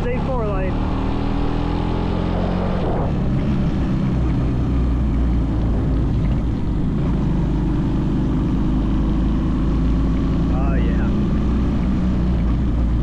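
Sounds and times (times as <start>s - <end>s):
wind rushing over microphone: 0.0s - 8.9s.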